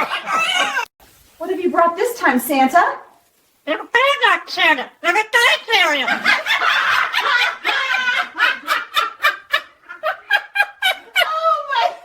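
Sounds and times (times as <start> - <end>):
person laughing hard: 0.0 - 0.9, 6.1 - 12.0.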